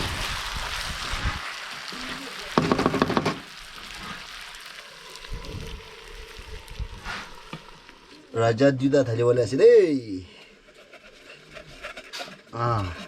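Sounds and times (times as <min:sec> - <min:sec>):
chicken sizzling in a pan: 0:00.0 - 0:08.4.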